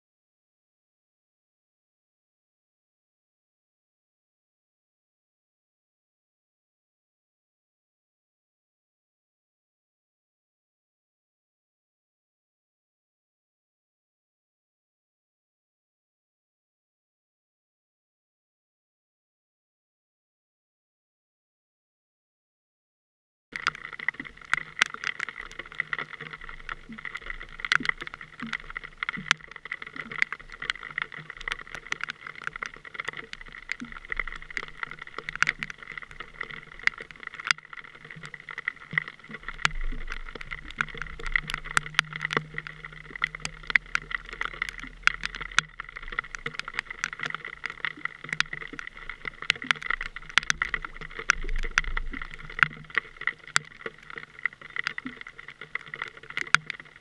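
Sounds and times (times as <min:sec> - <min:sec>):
small clicks and knocks: 0:23.6 - 0:57.0.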